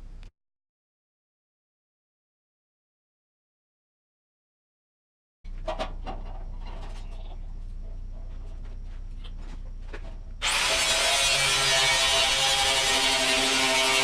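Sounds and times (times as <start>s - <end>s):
power tool running: 10.4s - 14.0s.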